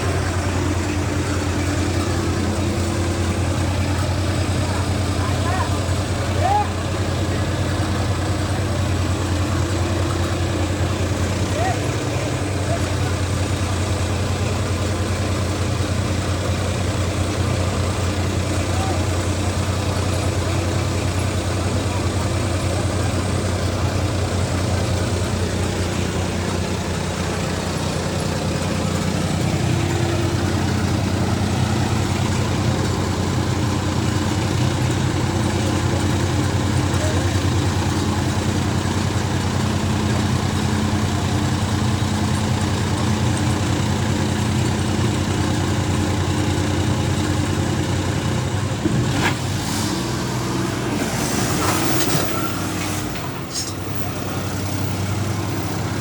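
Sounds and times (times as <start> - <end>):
tractor engines droning: 0.0 - 56.0.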